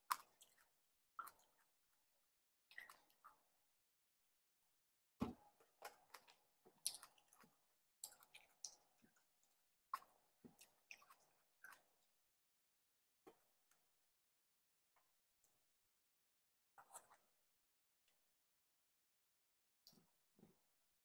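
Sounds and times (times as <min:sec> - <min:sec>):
wet juicy clicks and squelches: 0:00.1 - 0:01.7, 0:05.8 - 0:12.0
chewing cherry tomato: 0:05.8 - 0:11.9.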